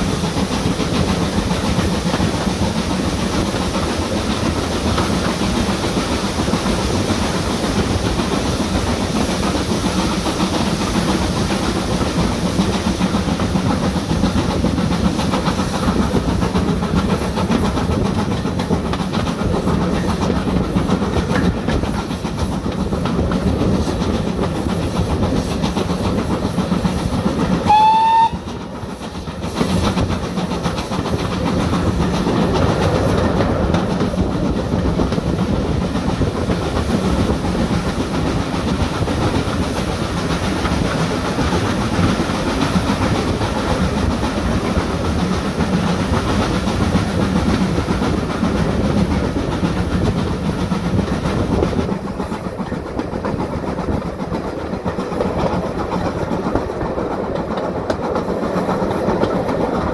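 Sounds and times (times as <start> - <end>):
train wheels clattering on rails: 0.0 - 59.9
train horn toot: 27.6 - 28.5.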